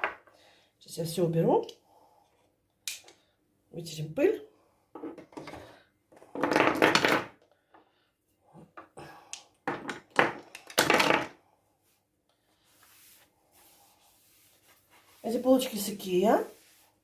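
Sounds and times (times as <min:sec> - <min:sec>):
small objects clicking and thunking: 0:05.0 - 0:07.5, 0:09.3 - 0:11.4.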